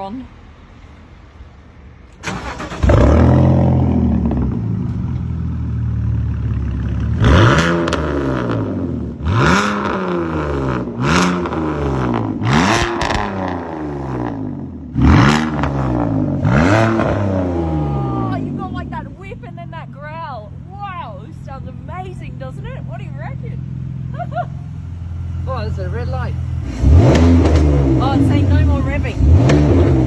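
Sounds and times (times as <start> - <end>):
race car engine revving: 2.2 - 30.0.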